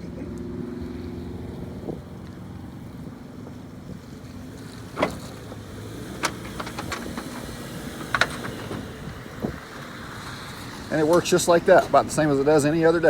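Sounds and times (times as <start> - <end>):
low engine rumble: 0.0 - 13.0
wind: 0.0 - 13.0
small metallic clicks and knocks: 4.6 - 8.9.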